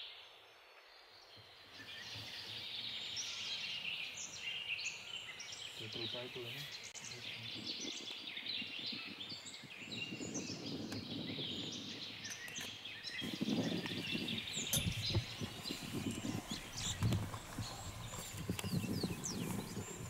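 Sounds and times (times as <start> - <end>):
wild birds chirping and trilling: 0.0 - 20.0
low background rumble: 14.2 - 20.0.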